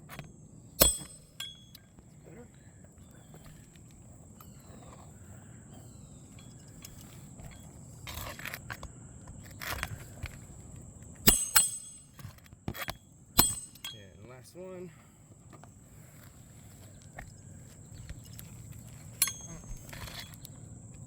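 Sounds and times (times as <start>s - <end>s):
hatchet hammering nails: 0.1s - 2.0s, 11.2s - 14.1s
hatchet scraping: 0.1s - 2.0s, 3.1s - 10.5s, 11.2s - 14.3s, 18.0s - 20.6s.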